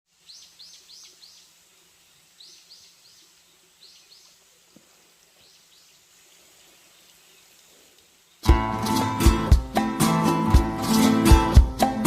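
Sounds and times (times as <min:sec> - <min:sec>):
bird chirping: 0:00.1 - 0:04.4.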